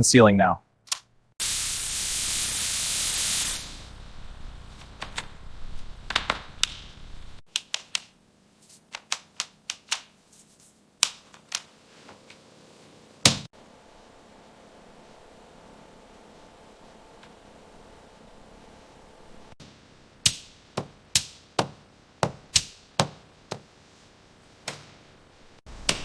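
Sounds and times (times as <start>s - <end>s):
pressurised gas hissing from hose: 1.4s - 4.8s
sharp irregular clicks and taps: 7.5s - 8.1s, 8.9s - 10.1s.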